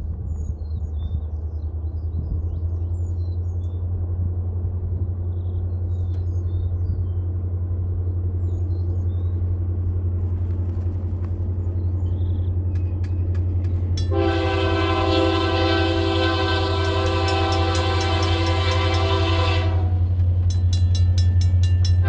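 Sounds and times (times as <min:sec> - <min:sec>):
train rumbling: 0:00.0 - 0:22.0
locomotive air horn: 0:14.0 - 0:20.2.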